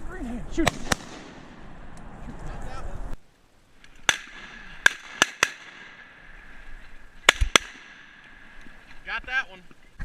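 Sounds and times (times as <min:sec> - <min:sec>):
shotgun shots: 0:00.6 - 0:01.8, 0:04.0 - 0:06.3, 0:07.2 - 0:08.6.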